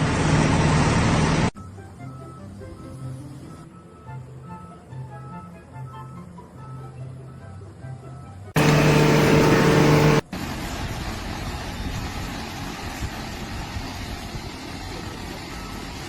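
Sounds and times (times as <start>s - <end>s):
loud steady pitched tone: 8.6s - 10.2s
low mechanical rumble: 8.6s - 14.4s.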